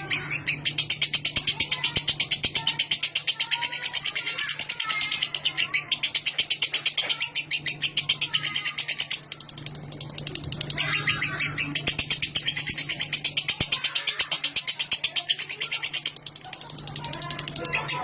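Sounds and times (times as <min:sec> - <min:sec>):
lovebird chattering trill: 0:00.0 - 0:18.0.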